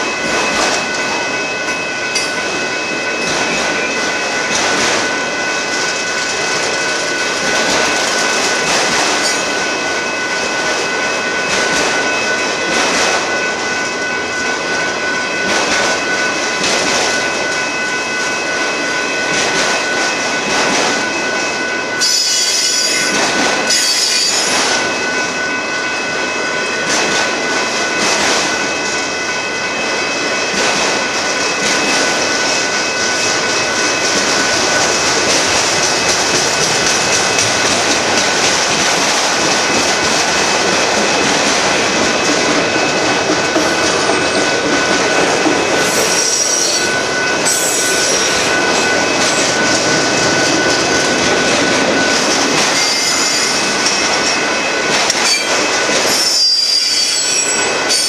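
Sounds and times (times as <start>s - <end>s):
freight train rumbling past: 0.0s - 58.0s
high wheel squeal: 45.8s - 51.5s, 52.1s - 54.4s, 55.2s - 58.0s.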